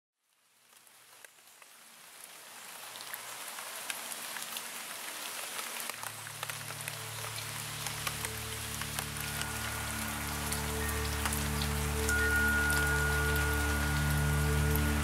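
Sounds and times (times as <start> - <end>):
rain falling: 0.2 - 15.0
raindrops ticking: 0.2 - 15.0
low steady tones: 6.2 - 15.0.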